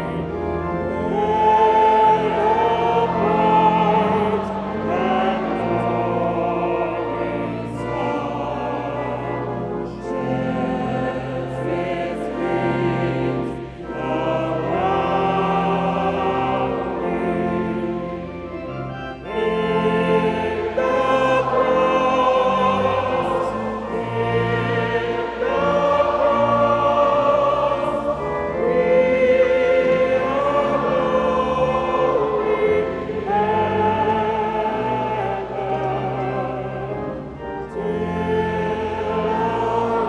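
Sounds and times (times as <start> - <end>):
choir singing held notes: 0.0 - 40.0.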